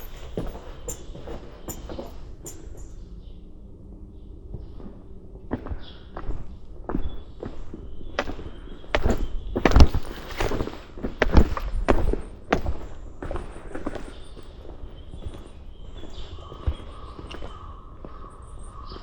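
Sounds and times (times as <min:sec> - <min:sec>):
footsteps on a path: 0:00.0 - 0:02.9.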